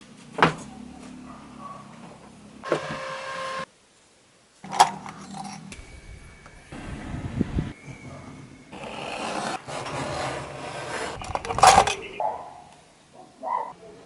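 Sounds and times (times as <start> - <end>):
machine whirring whine: 4.8 - 10.1.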